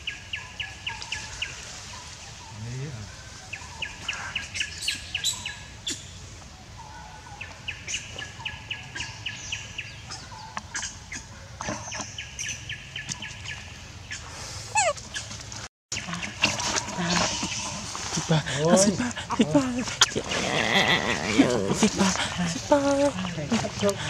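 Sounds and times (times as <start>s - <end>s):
wild birds calling: 0.0s - 24.0s
bird chirps: 3.2s - 15.3s.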